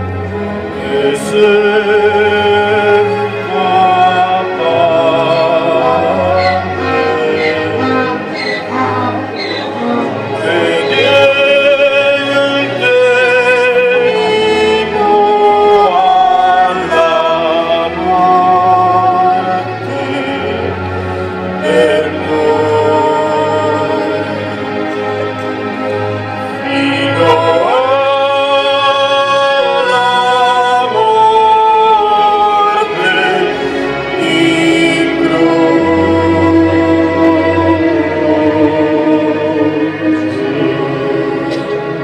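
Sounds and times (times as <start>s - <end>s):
person singing with vibrato: 0.0s - 24.9s, 26.1s - 42.0s
low sustained accompaniment: 0.0s - 28.3s.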